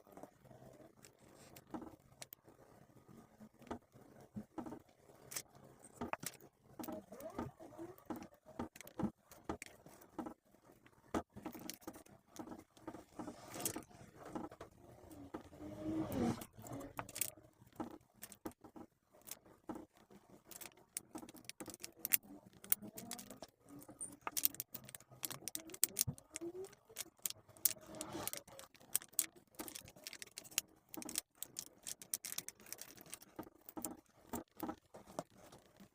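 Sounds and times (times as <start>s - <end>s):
tools and phone parts clicking: 11.4s - 12.8s, 16.2s - 19.4s, 20.5s - 35.7s.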